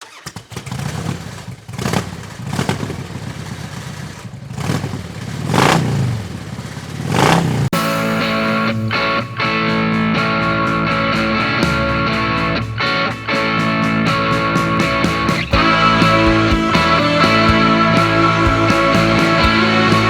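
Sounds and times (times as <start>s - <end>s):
motorcycle engine revving: 0.0s - 9.6s
guitar music: 7.7s - 20.0s.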